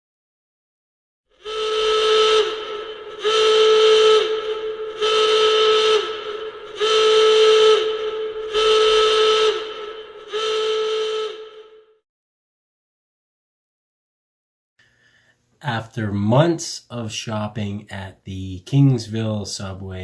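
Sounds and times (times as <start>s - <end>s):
whistle blasts: 1.4s - 12.0s.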